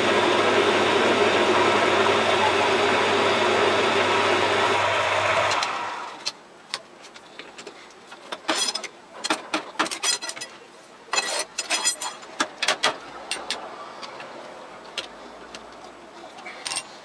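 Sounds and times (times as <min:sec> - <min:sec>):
lathe motor running down: 0:00.0 - 0:06.2
metallic clicks and knocks: 0:06.2 - 0:14.3.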